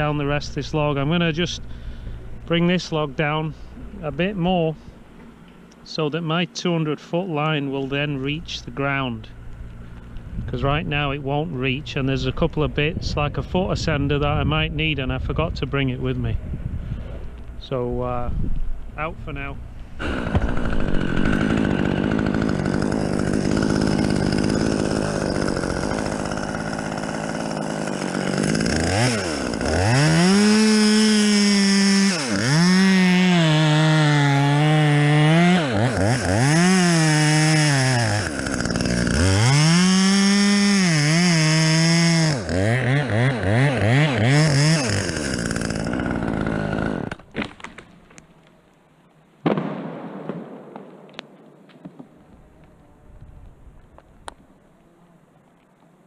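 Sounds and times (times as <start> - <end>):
chainsaw idling: 20.0 - 47.4
chainsaw revving and cutting log: 20.0 - 47.6.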